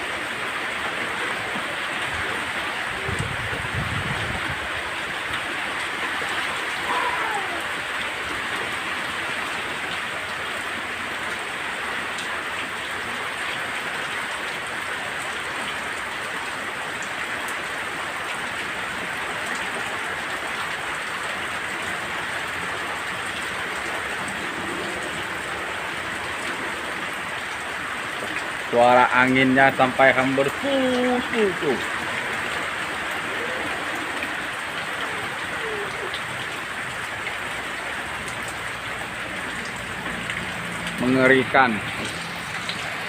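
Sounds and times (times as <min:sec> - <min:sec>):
heavy rain pouring: 0:00.0 - 0:43.0
strong wind: 0:02.0 - 0:05.7.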